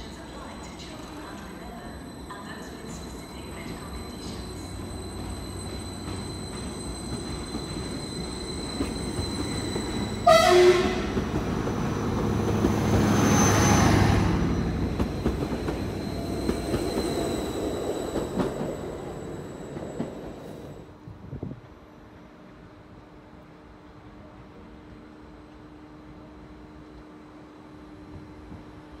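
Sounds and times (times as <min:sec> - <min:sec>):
train rumble and wheel noise: 0:00.0 - 0:29.0
train horn blast: 0:10.2 - 0:11.3.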